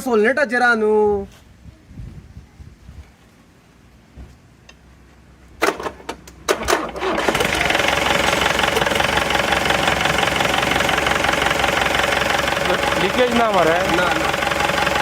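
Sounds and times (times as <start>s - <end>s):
starter cranking diesel engine: 6.5s - 15.0s
diesel engine running: 6.8s - 15.0s.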